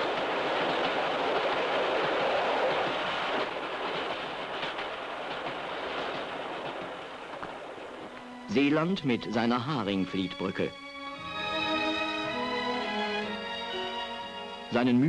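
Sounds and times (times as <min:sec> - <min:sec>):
wheels clicking over rail joints: 0:00.0 - 0:10.7
train rolling rumble: 0:00.0 - 0:15.0.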